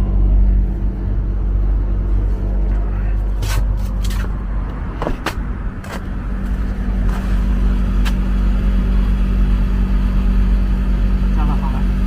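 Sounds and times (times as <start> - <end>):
air conditioner humming: 6.1 - 12.0.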